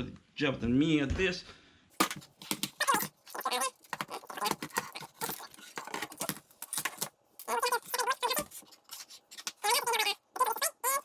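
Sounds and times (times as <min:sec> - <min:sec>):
hands and tools handling plastic: 0:02.0 - 0:11.0
person muttering: 0:02.8 - 0:06.3, 0:09.4 - 0:11.0.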